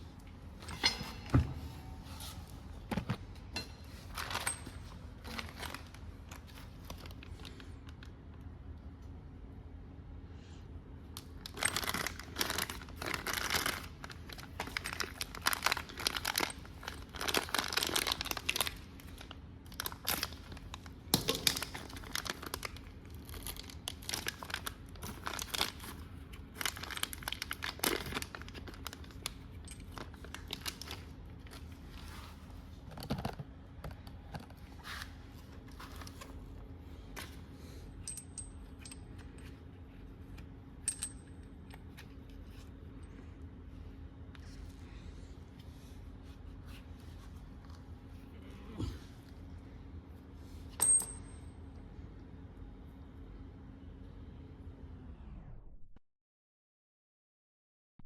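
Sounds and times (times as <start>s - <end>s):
crinkling and rustling: 0.6s - 8.2s, 11.4s - 37.5s.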